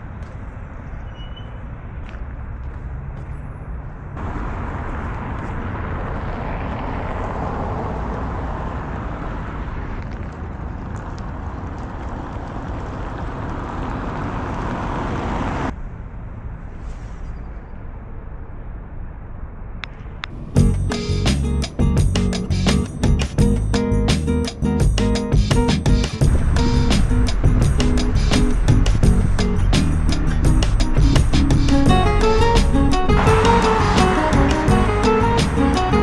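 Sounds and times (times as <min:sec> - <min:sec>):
road traffic noise: 0:00.0 - 0:19.2, 0:19.8 - 0:36.0.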